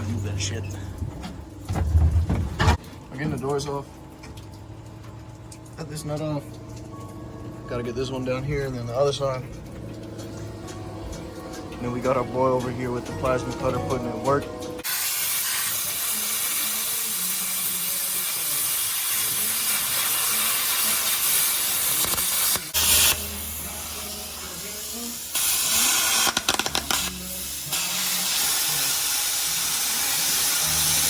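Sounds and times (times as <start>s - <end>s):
plasma cutter hissing: 14.8s - 31.0s.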